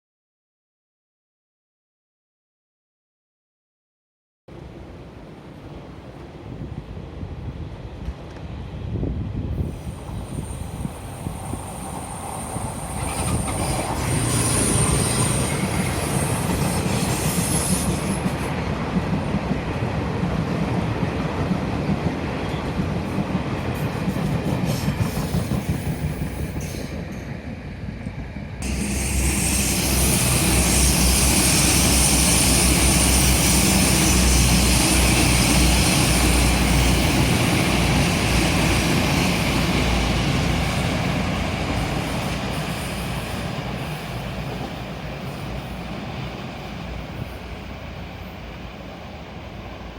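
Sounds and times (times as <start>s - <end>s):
diesel train engine drone: 4.5s - 49.9s
train wheels rumbling on rails: 4.6s - 49.9s
train wheels squealing on curve: 9.6s - 18.5s, 24.4s - 27.3s, 28.6s - 45.9s.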